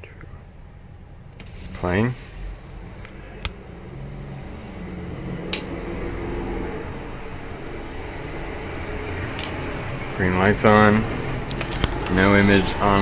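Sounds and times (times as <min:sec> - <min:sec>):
faint held low tones: 0:00.0 - 0:13.0
steady low hum: 0:00.0 - 0:13.0
sharp clicks: 0:05.5 - 0:05.8.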